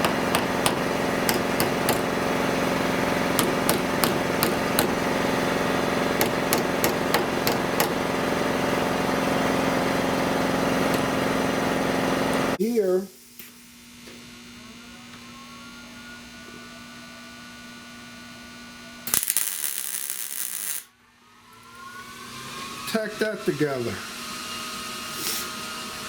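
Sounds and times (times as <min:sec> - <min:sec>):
hammer tapping sheet steel: 0:00.0 - 0:05.2, 0:06.1 - 0:08.1
machine hum: 0:00.0 - 0:12.6.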